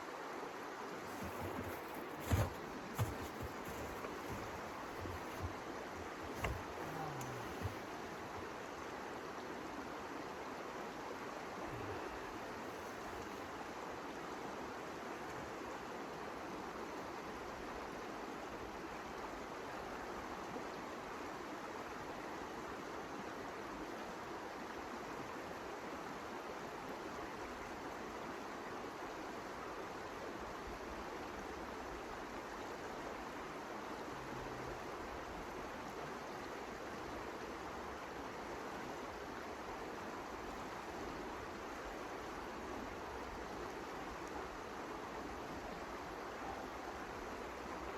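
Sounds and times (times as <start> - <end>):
wind with blowing snow: 0.0 - 9.0.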